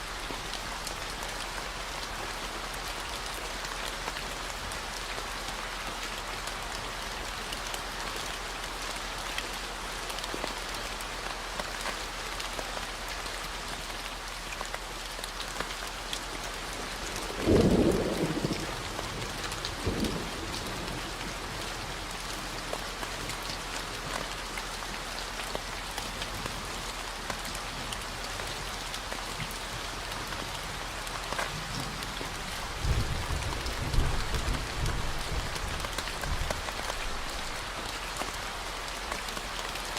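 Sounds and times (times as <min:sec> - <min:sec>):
steady rain falling: 0:00.0 - 0:39.9
thunder rumble: 0:32.6 - 0:36.4.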